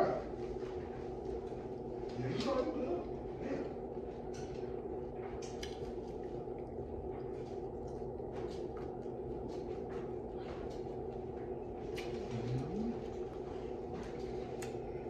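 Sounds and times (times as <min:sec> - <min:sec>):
low hum: 0:00.0 - 0:15.0
chewing food: 0:00.4 - 0:15.0
wet mouth smacks and clicks: 0:05.4 - 0:05.9.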